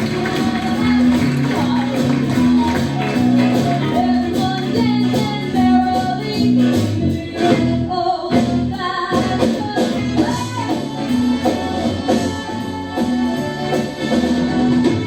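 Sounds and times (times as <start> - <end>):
live band music: 0.0 - 15.0
person singing: 0.0 - 15.0
repeating bass line: 0.0 - 15.0.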